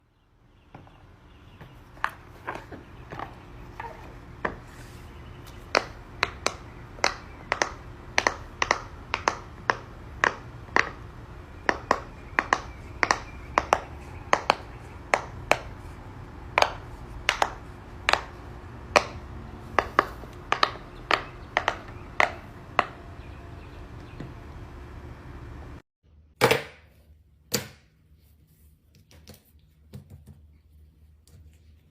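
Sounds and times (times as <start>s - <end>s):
low hum: 0.9s - 25.8s.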